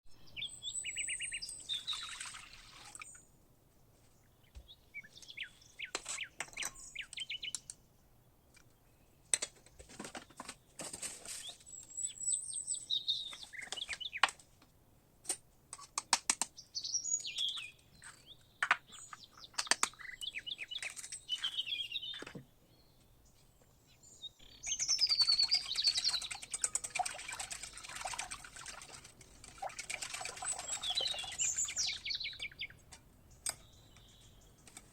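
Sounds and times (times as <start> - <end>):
small birds chirping: 0.1 - 3.4, 4.0 - 14.5, 15.8 - 34.9
sharp clicks and taps: 13.6 - 16.6, 18.6 - 20.0.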